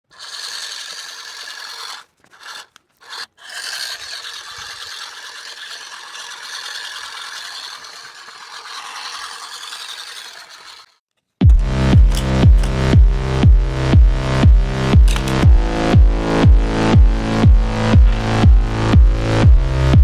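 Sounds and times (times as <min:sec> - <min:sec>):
tool rasping on plastic pipe: 0:00.0 - 0:11.0, 0:15.1 - 0:15.5.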